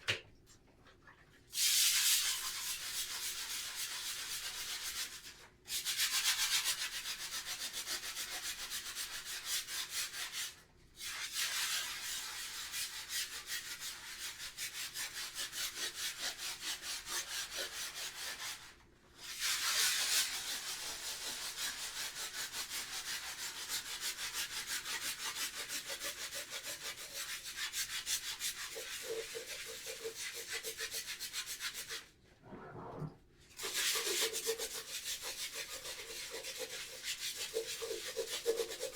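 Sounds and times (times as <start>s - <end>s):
scrubbing surface: 32.4s - 33.2s.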